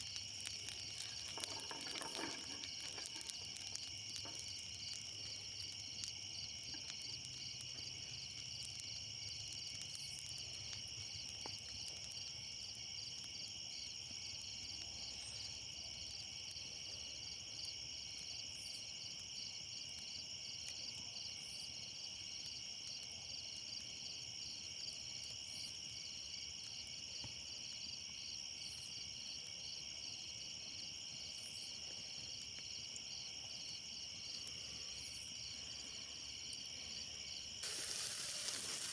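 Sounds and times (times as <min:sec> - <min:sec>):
insect chorus shrill drone: 0:34.3 - 0:38.9.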